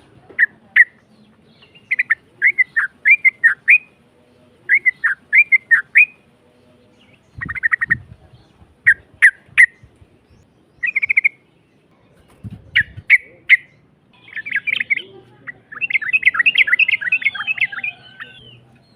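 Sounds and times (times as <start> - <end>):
bulbul singing: 0.0 - 18.9.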